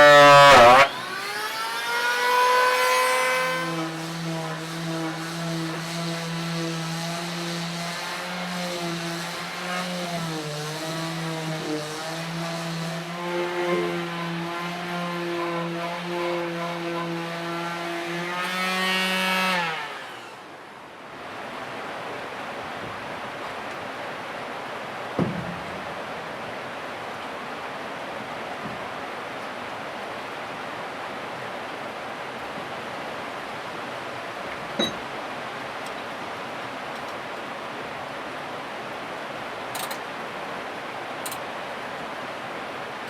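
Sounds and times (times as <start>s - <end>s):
electric power tool running: 0.0s - 20.6s.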